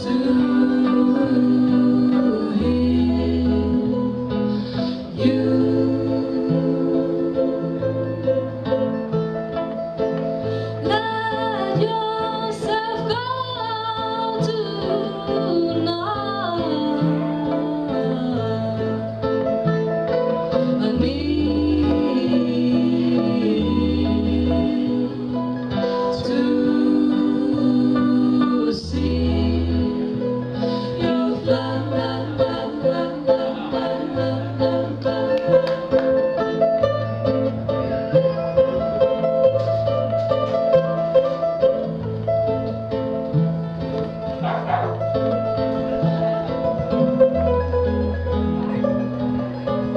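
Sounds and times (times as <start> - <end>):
person singing: 0.0 - 8.6, 20.5 - 36.4
bass line: 0.0 - 13.9, 15.4 - 49.9
guitar: 0.0 - 49.9.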